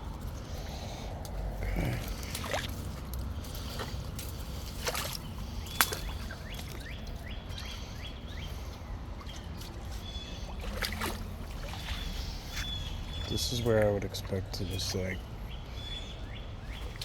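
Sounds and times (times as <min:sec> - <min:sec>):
footsteps wading through water: 0:00.0 - 0:15.7
bird calling: 0:04.9 - 0:17.0.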